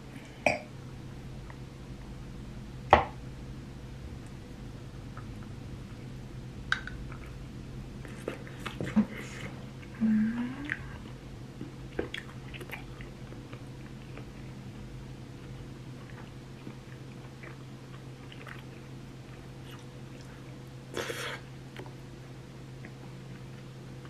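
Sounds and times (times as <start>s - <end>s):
low hum: 0.0s - 20.9s
person humming mm: 9.9s - 11.0s.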